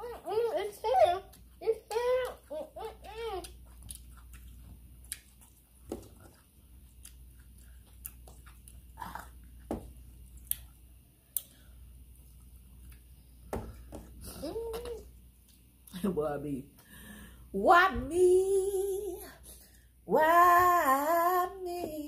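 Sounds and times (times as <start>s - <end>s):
people chewing noodles: 0.0s - 13.1s
mouth clicks and smacks: 3.4s - 9.6s.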